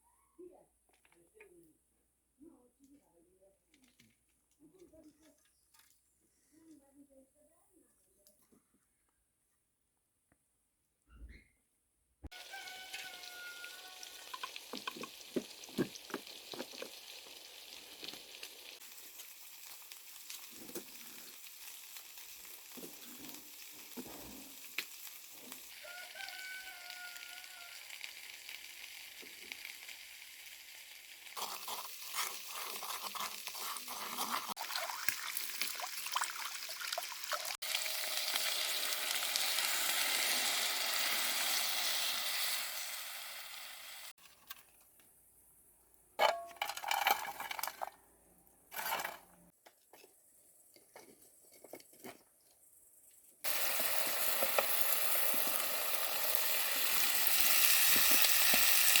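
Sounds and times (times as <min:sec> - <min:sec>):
food sizzling: 0:12.3 - 0:44.3, 0:53.4 - 0:59.0.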